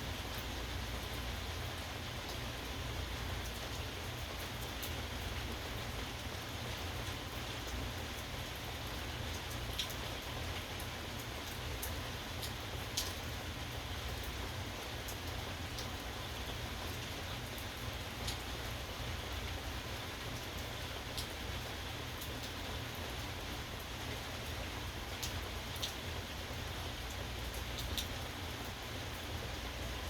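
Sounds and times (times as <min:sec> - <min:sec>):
steady rainfall: 0:00.0 - 0:30.0
raindrops tapping close by: 0:07.2 - 0:29.8.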